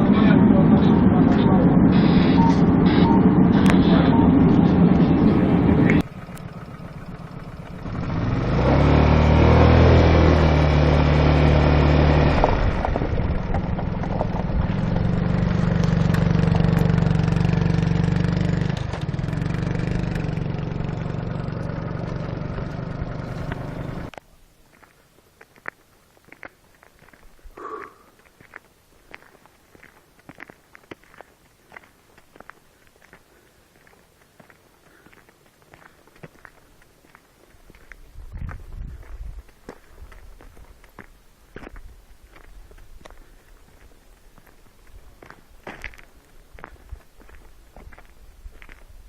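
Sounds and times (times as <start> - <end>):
vehicle engine running: 0.0 - 24.2.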